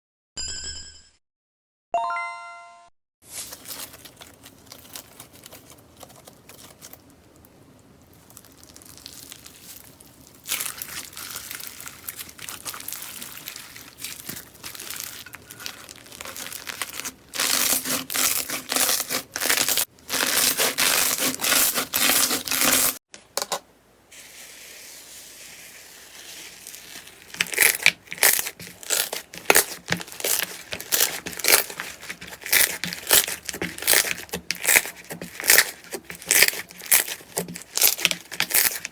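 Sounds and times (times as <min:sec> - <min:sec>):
slime crackling and clicking: 0:27.3 - 0:38.9.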